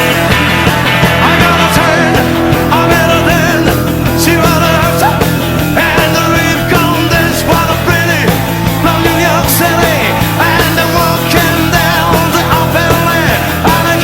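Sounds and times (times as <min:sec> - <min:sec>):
guitar bending wavering notes: 0:00.0 - 0:09.0
rock and roll band music: 0:00.0 - 0:14.0.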